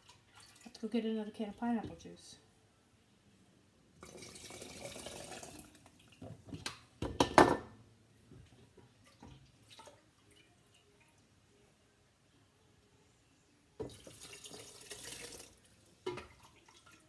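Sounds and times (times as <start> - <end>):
liquid pouring: 4.0 - 6.2, 13.8 - 17.0
kitchen items knocking and clinking: 6.5 - 7.7.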